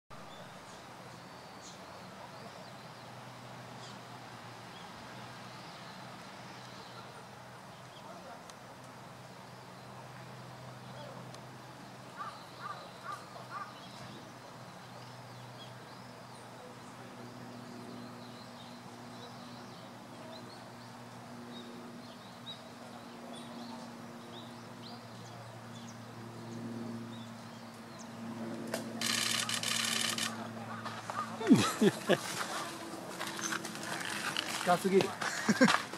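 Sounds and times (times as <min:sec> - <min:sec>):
bird calling: 0:12.2 - 0:13.8, 0:29.0 - 0:32.2.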